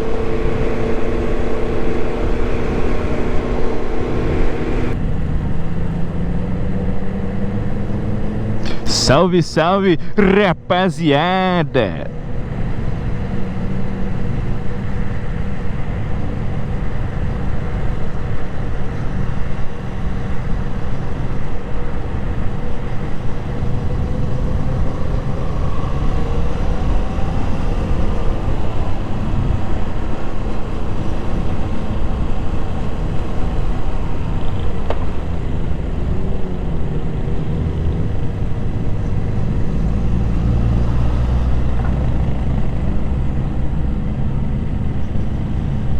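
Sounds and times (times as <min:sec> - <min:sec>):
road and wind noise: 0:00.0 - 0:08.9, 0:11.8 - 0:45.9.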